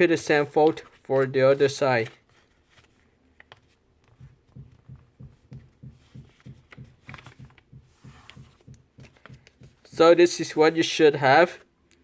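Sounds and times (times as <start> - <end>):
paper crackling: 0.0 - 4.4, 6.0 - 10.0
paper being folded and creased: 0.0 - 10.0.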